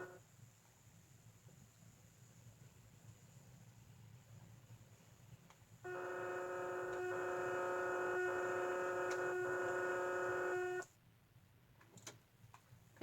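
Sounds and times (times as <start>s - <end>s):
electronic buzzy warning tone: 5.9s - 10.9s.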